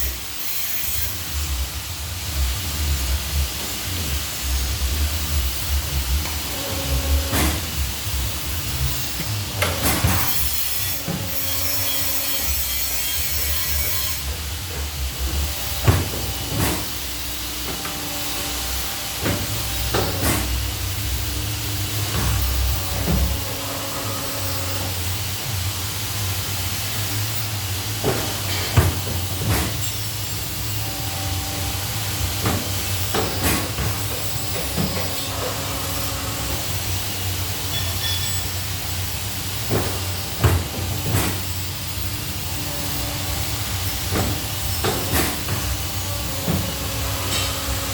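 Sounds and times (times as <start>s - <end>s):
machine hissing and humming: 0.0s - 47.9s
machine clicks and clunks: 6.2s - 7.8s, 8.7s - 12.6s, 17.6s - 20.7s, 28.0s - 30.2s, 31.2s - 36.7s, 39.6s - 47.9s.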